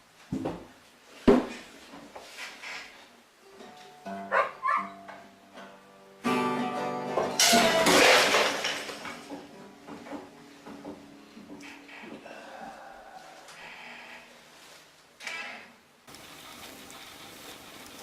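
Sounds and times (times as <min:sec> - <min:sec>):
plucked acoustic guitar music: 0:03.5 - 0:08.0.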